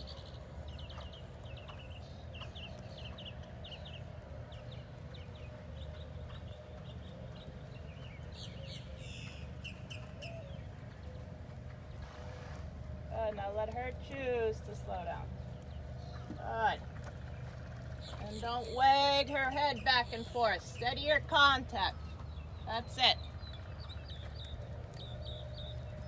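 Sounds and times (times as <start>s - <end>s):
birds chirping: 0.0s - 26.0s
steady low rumble: 0.0s - 26.0s.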